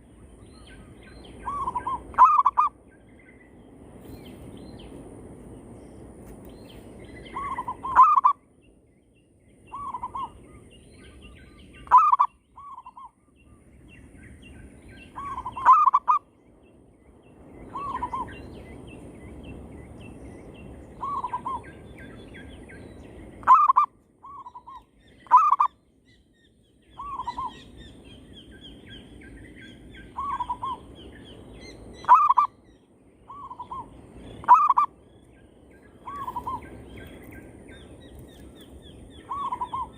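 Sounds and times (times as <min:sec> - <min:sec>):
doves cooing: 0:39.2 - 0:39.9.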